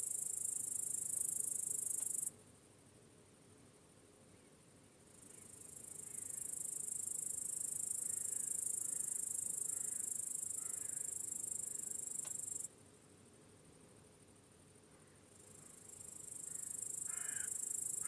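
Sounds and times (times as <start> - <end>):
crickets trilling: 5.1 - 12.7, 14.0 - 18.0.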